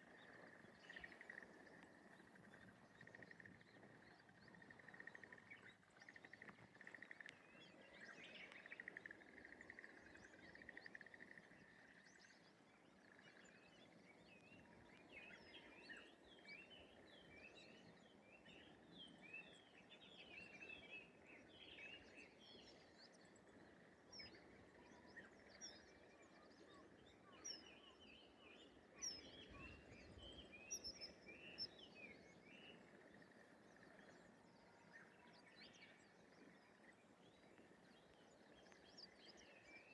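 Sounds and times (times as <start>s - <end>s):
small birds chirping: 0.0s - 17.9s.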